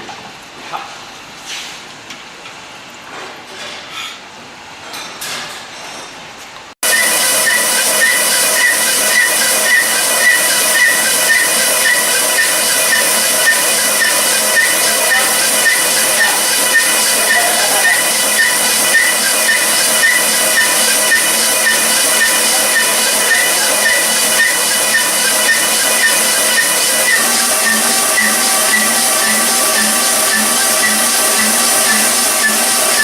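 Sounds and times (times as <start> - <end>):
machine running with hiss and whine: 6.8 - 33.0.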